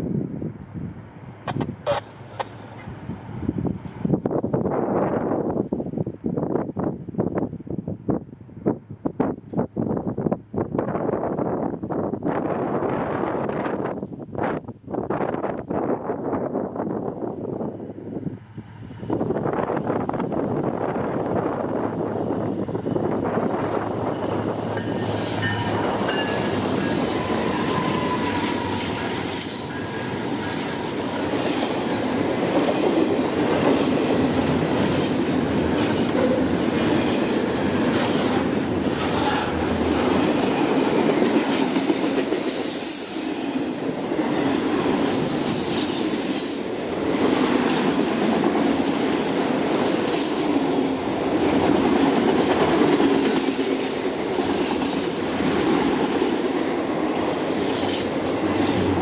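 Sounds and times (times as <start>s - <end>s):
freight train rumbling: 0.0s - 59.0s.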